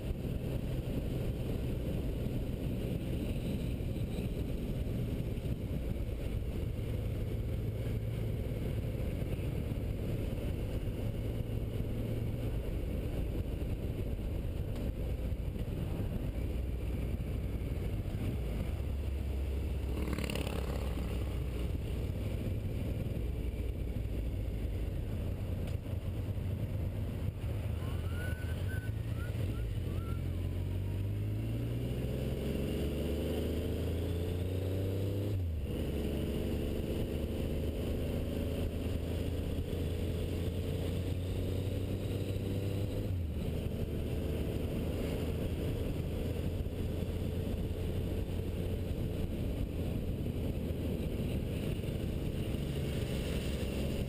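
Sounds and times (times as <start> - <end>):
road and wind noise: 0.0 - 54.0
motorcycle engine revving: 17.1 - 54.0.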